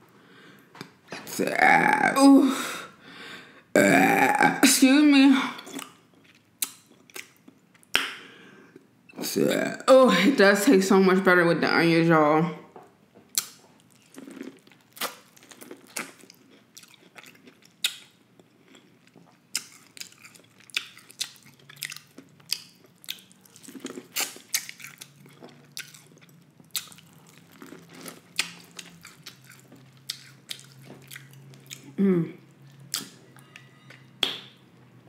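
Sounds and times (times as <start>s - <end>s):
chewing corn on the cob: 13.3s - 32.0s.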